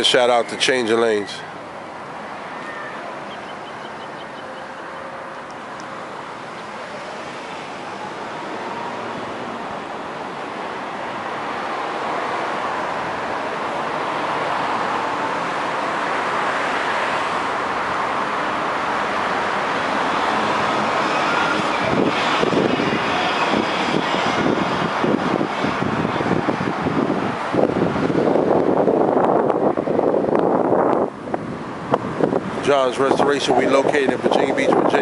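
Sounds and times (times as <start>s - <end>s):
passing vehicle rushing: 5.9s - 35.0s
wind buffeting microphone: 20.9s - 35.0s.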